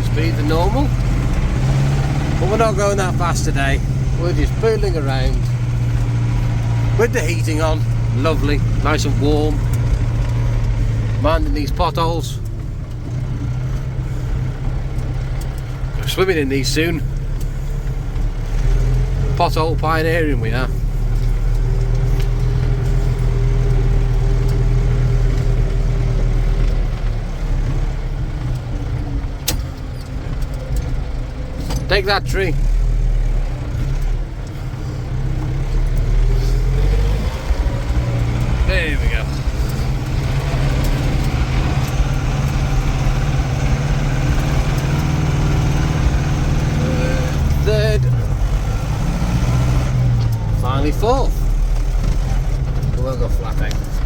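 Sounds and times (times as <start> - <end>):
tractor diesel engine running: 0.0 - 54.0
sharp click: 29.4 - 29.8.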